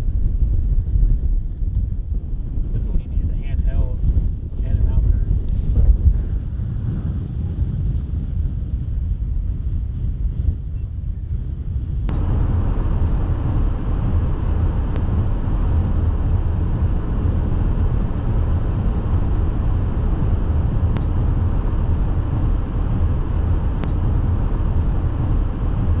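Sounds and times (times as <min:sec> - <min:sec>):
vehicle road noise rumble: 0:00.0 - 0:26.0.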